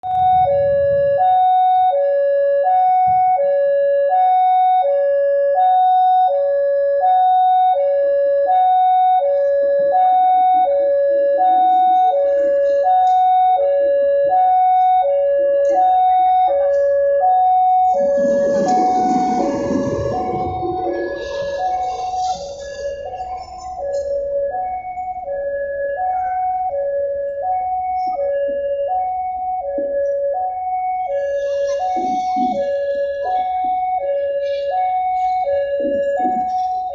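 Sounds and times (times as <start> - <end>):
low rumbling noise: 0.0 - 1.4, 17.7 - 28.2
level crossing two-tone alarm: 0.0 - 36.9.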